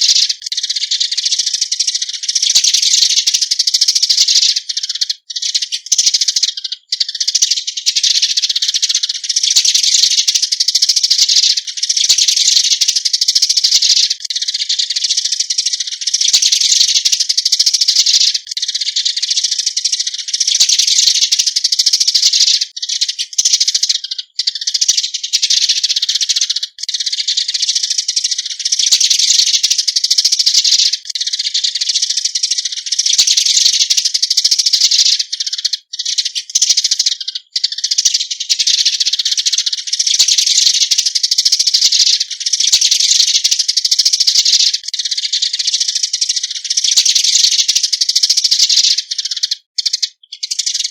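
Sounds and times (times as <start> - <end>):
sparrows chirping: 0.0 - 50.9.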